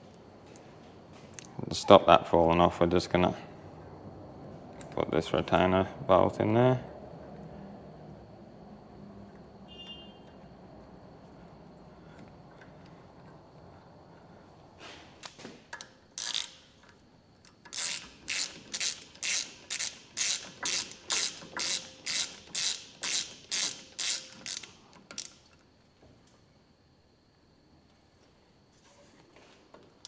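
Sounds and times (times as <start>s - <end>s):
ratchet wrench clicking: 15.2s - 25.5s.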